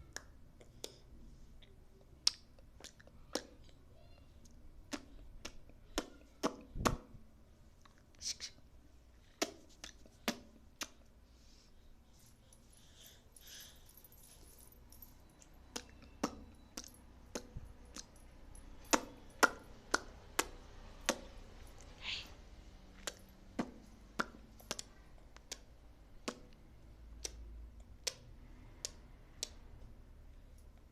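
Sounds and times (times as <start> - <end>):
baby making sharp clicks: 4.4 - 7.0, 24.2 - 26.6, 27.2 - 27.4.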